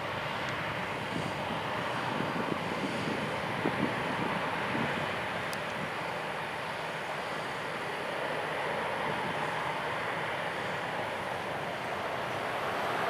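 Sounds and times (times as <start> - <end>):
jet engines running: 0.0 - 13.0
faint tick: 5.5 - 5.8.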